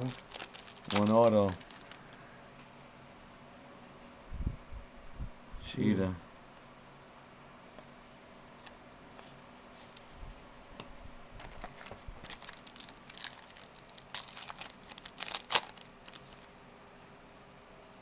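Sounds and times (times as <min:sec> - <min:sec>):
foil pack tearing and crinkling: 0:00.0 - 0:02.0, 0:11.4 - 0:16.5.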